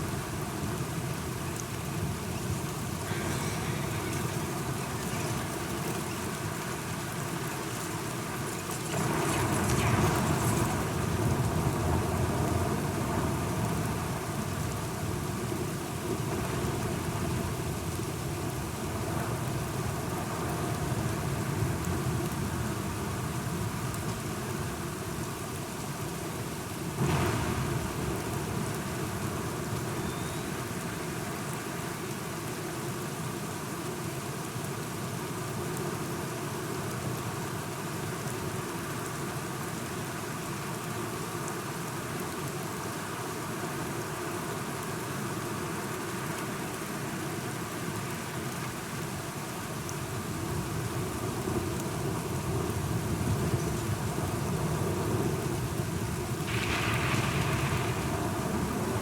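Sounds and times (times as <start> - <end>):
steady rain: 0.0 - 59.0
rolling thunder: 54.6 - 59.0
thunder crack: 56.4 - 59.0.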